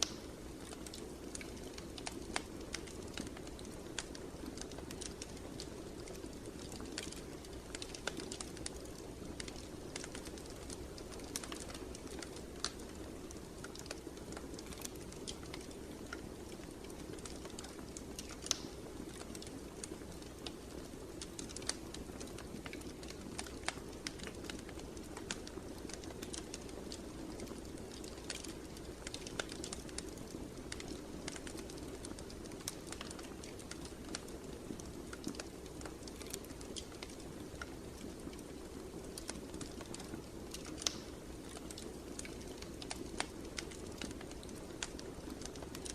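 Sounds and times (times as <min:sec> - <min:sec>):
fire crackling and popping: 0:00.0 - 0:45.9
low rumble of flames: 0:00.0 - 0:45.9.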